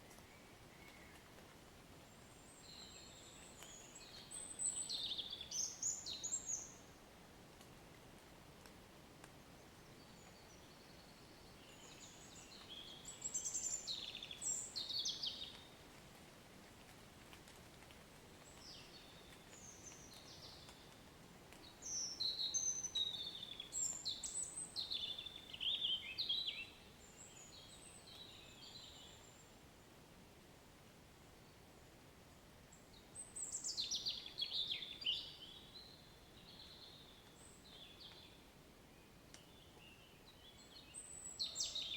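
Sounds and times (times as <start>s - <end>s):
faint steady hiss: 0.0s - 41.9s
songbird singing: 2.1s - 7.0s, 9.6s - 15.8s, 18.4s - 21.0s, 21.6s - 29.6s, 32.7s - 41.9s.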